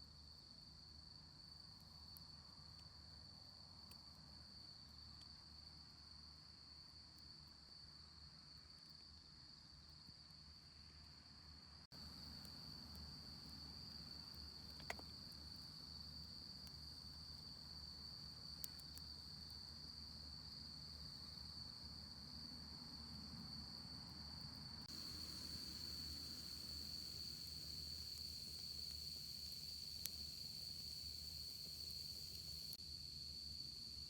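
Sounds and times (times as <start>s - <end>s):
crickets trilling: 12.0s - 34.0s
small clicks: 14.6s - 15.6s.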